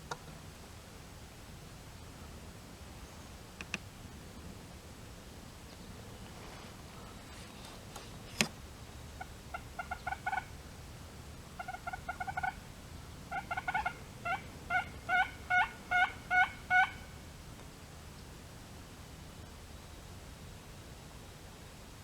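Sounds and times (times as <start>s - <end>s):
turkey yelping: 9.5s - 10.5s, 11.6s - 12.6s, 13.3s - 17.2s.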